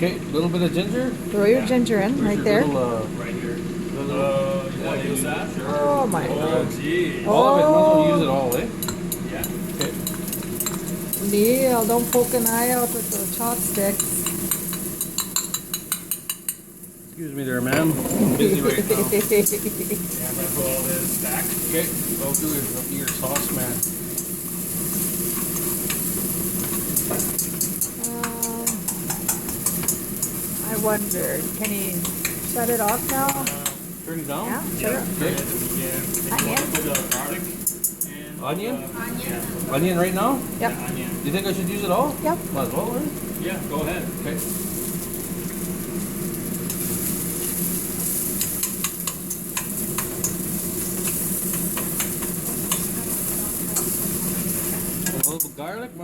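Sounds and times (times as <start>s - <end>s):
steady low hum: 0.0s - 55.1s
ginger sizzling in hot oil: 2.7s - 56.0s
utensil clicking against pan: 8.8s - 12.6s, 13.7s - 16.6s, 25.4s - 30.4s, 31.1s - 33.8s, 36.1s - 38.1s, 51.0s - 52.9s
chopsticks clicking against pan: 26.6s - 30.4s, 36.1s - 38.1s, 51.0s - 52.9s.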